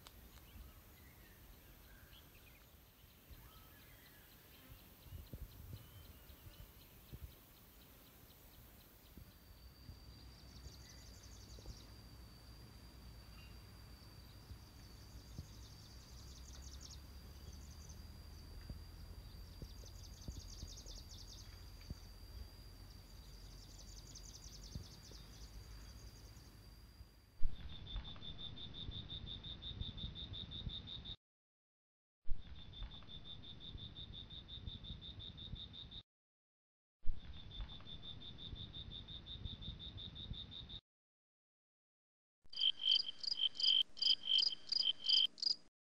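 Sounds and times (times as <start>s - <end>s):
insect high whine: 7.6s - 27.2s, 42.6s - 45.6s
insect chirring: 42.5s - 45.7s
pulsing insect buzz: 42.6s - 45.6s.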